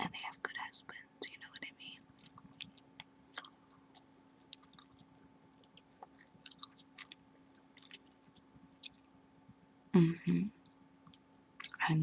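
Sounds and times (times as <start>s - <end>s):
gum chewing smacks: 2.0s - 9.1s, 11.1s - 11.9s.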